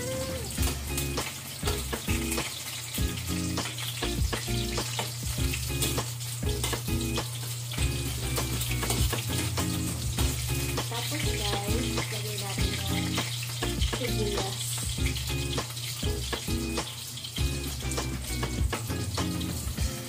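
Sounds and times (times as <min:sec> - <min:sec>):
background music with bass line: 0:00.0 - 0:12.0, 0:12.6 - 0:20.0
onion and garlic sizzling in oil: 0:00.0 - 0:20.0.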